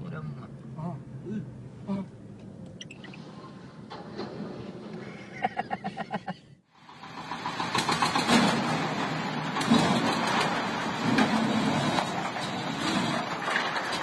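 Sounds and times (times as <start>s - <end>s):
mechanical noise: 2.7s - 5.0s
heavy truck engine pulsing: 6.7s - 14.0s.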